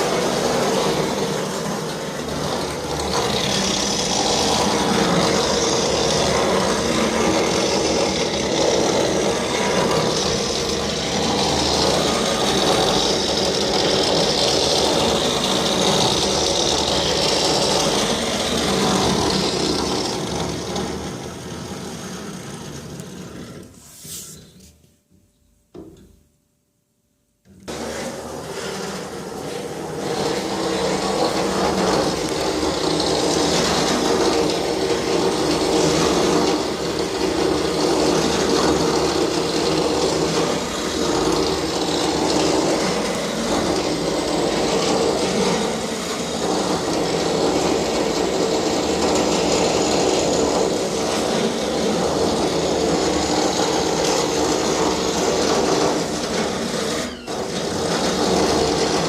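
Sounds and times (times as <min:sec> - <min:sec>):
electric drill whining: 0:00.0 - 0:23.7, 0:27.7 - 0:59.0.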